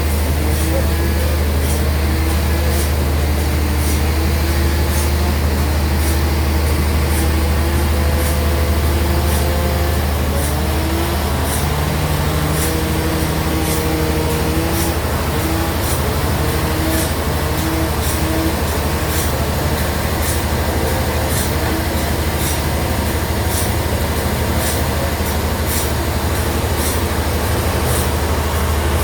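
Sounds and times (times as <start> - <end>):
bandsaw running: 0.0 - 29.0.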